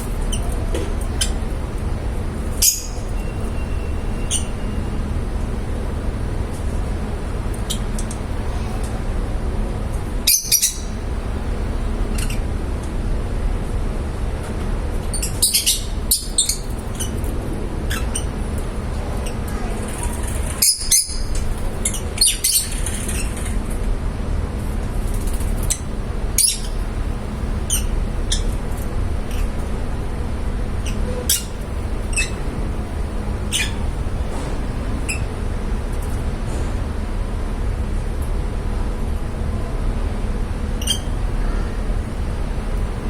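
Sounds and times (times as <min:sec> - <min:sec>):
low background rumble: 0:00.0 - 0:43.0
lovebirds chirping and squawking: 0:02.5 - 0:04.8, 0:10.3 - 0:11.0, 0:12.0 - 0:12.4, 0:15.1 - 0:17.2, 0:17.9 - 0:18.4, 0:19.0 - 0:23.6, 0:25.3 - 0:26.9, 0:27.6 - 0:28.6, 0:30.8 - 0:32.5, 0:33.5 - 0:35.2, 0:40.8 - 0:41.7.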